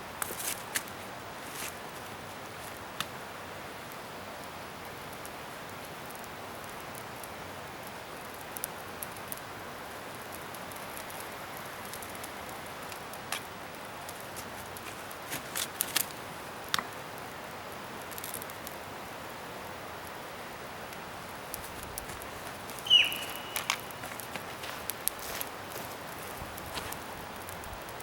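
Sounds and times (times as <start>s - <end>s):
bonfire hissing: 0.0s - 28.0s
fire crackling and snapping: 0.2s - 28.0s.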